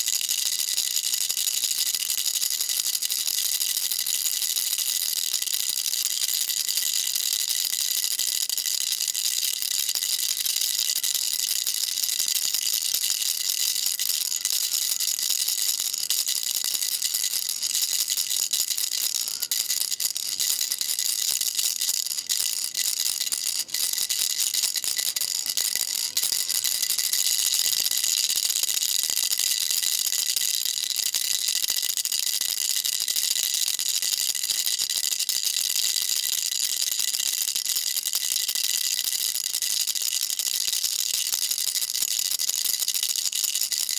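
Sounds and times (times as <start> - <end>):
baby rattle shaking: 0.3 - 32.3.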